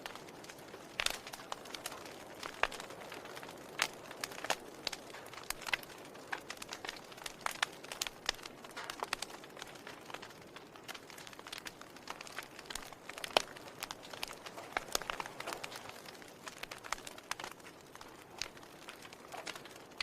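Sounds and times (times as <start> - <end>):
burning wood crackling: 0.0 - 20.0.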